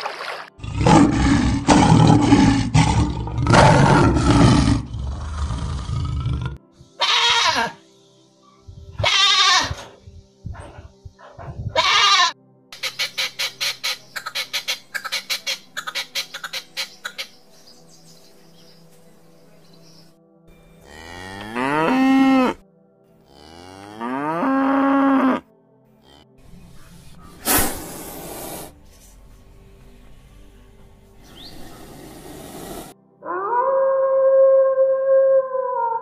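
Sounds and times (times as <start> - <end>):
lion roaring and grunting: 0.6 - 6.6
goat bleating: 7.0 - 7.8, 9.0 - 9.9, 11.7 - 12.4
quail calls: 11.7 - 17.4.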